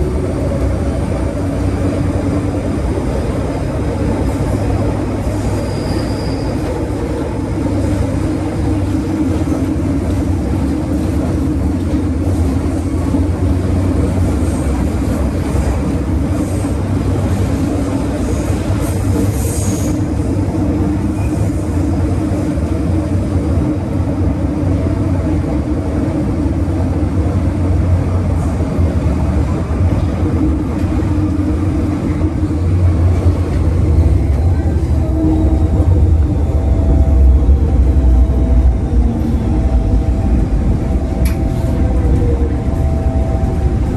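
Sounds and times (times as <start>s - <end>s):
train wheels rumbling on track: 0.0s - 43.9s
faint high squeaks: 5.5s - 6.8s.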